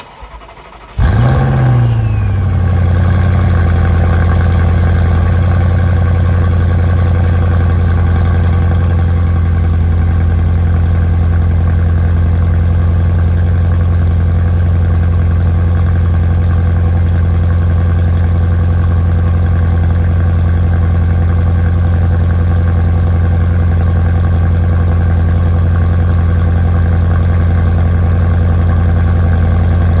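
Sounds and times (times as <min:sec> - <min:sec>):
engine cranking: 0:00.0 - 0:02.6
car engine revving and idling: 0:00.0 - 0:30.0.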